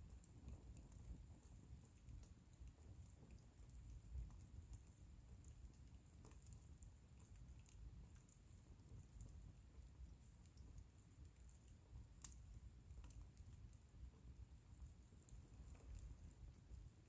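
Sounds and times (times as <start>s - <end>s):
bonfire crackling: 0.0s - 17.0s.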